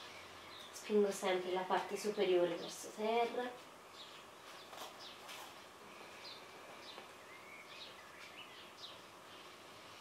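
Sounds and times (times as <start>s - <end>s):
faint birds chirping: 0.0s - 10.0s.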